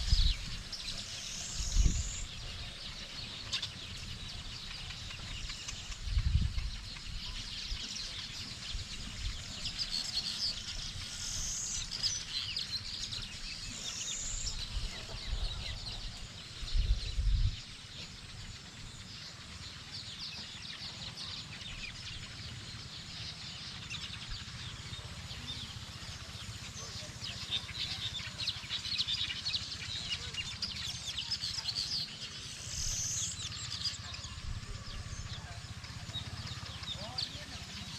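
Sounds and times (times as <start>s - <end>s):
low rumbles on microphone: 0.0s - 0.8s, 5.8s - 7.8s, 14.4s - 17.8s
small birds chirping and trilling: 0.0s - 37.9s.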